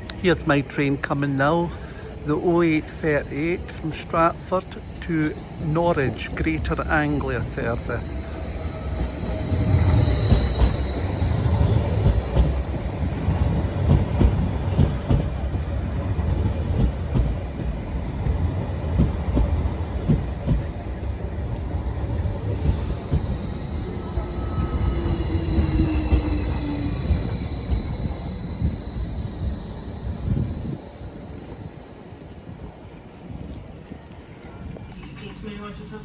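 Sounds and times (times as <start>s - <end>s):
train rumble: 0.0s - 36.0s
high steady squeal: 1.4s - 13.6s, 19.5s - 34.5s.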